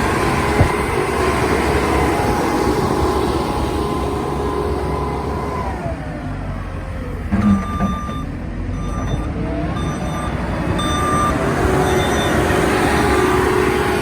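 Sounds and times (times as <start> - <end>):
low clunk: 0.0 - 3.2
diesel engine running: 0.0 - 14.0
reversing alarm beeps: 7.3 - 13.4.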